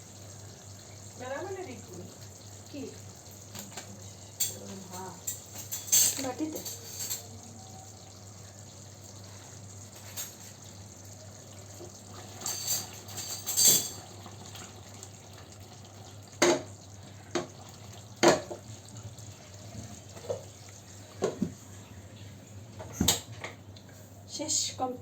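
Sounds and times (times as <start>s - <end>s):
water at sink: 0.0s - 24.0s
utensils and dishes clattering: 3.5s - 7.4s, 9.9s - 10.6s, 12.2s - 14.4s.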